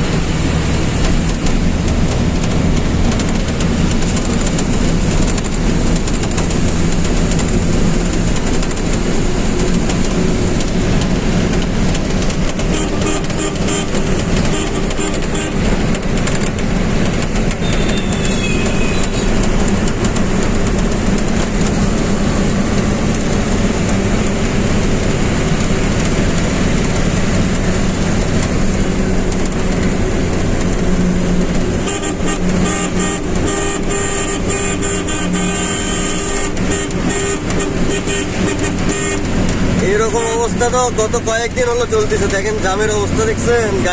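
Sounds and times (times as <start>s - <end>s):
highway traffic noise: 0.0s - 43.9s
truck engine running: 0.0s - 43.9s
vehicle horn honking: 12.7s - 15.7s, 17.6s - 19.5s, 31.8s - 39.4s.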